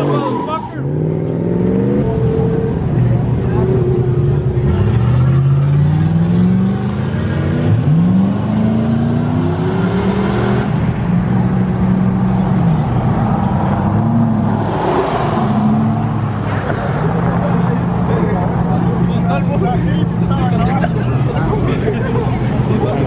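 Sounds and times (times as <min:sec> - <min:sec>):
vehicle engine revving: 0:00.8 - 0:18.1.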